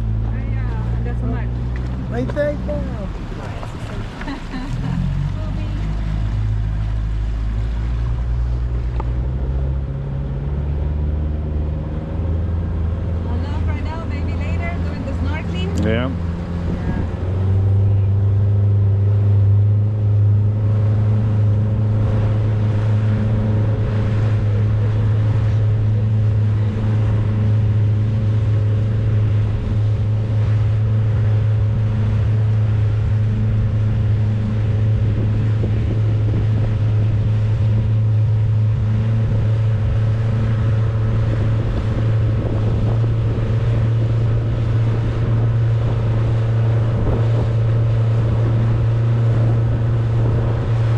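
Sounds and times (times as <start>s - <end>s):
boat motor humming: 0.0s - 50.9s
wind and water rushing: 0.0s - 50.9s.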